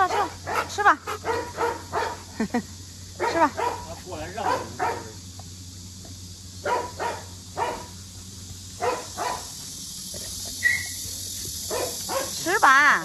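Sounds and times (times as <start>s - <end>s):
dog barking: 0.0s - 2.3s, 3.2s - 5.2s, 6.6s - 8.0s, 8.8s - 9.5s, 11.7s - 12.5s
low background hum: 0.0s - 13.0s.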